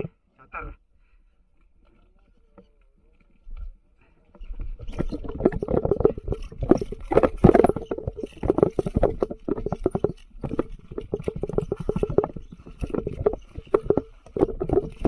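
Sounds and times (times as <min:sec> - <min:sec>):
mountain bike clattering over rocks: 0:04.4 - 0:15.0.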